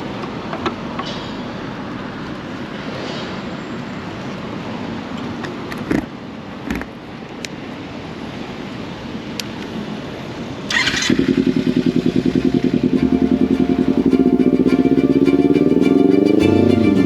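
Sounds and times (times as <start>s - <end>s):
road and wind noise: 0.0s - 17.0s
motorcycle engine running: 10.7s - 17.0s.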